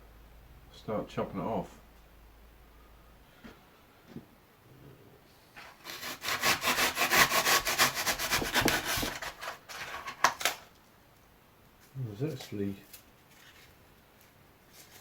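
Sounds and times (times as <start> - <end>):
blade sawing through foam: 5.8 - 9.4.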